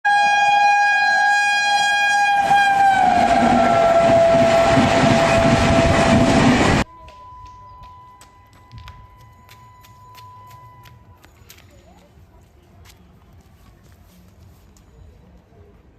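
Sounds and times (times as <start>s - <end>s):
train horn blast: 0.0s - 6.8s
rumble and clatter of passing train: 2.4s - 15.9s.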